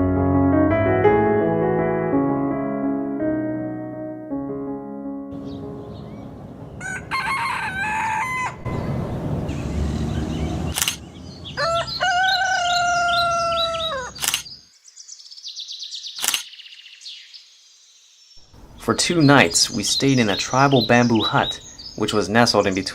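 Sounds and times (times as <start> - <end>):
rooster crowing: 6.8 - 10.4, 11.2 - 14.2
sharp clicks: 10.7 - 11.0, 14.2 - 14.6, 16.2 - 16.5
rapid high chirping: 18.4 - 22.9.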